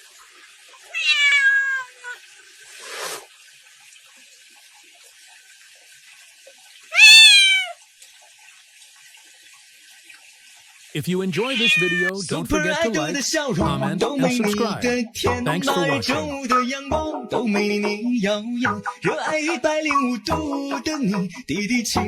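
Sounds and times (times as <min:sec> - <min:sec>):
cat meowing: 0:01.0 - 0:02.2, 0:06.9 - 0:07.8, 0:11.5 - 0:12.2.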